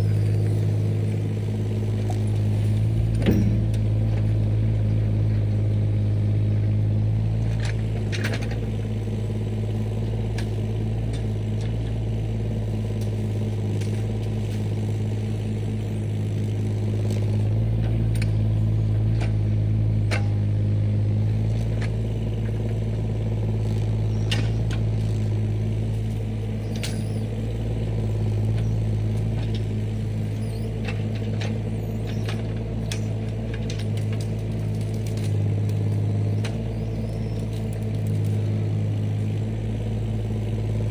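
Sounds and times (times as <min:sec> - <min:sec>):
heavy equipment engine running: 0:00.0 - 0:40.9
light clanks and rattles: 0:03.0 - 0:05.5, 0:07.4 - 0:08.8.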